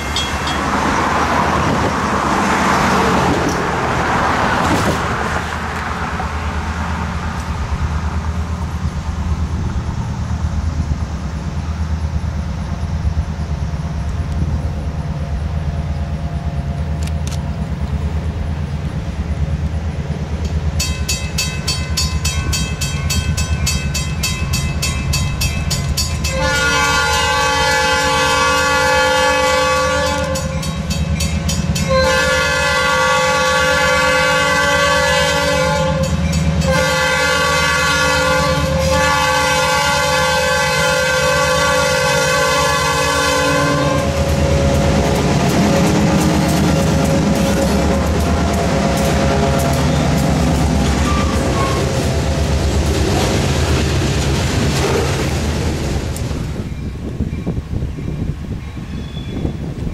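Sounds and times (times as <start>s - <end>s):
locomotive bell ringing: 0.0s - 1.2s, 20.7s - 32.2s, 35.8s - 36.9s
diesel locomotive engine rumble: 0.0s - 59.9s
train horn blasts: 26.2s - 30.8s, 31.6s - 52.6s.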